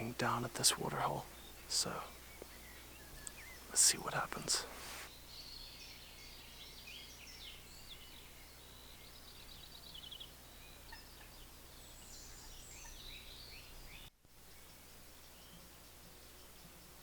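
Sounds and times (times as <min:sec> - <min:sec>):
songbirds singing: 0:00.0 - 0:17.0.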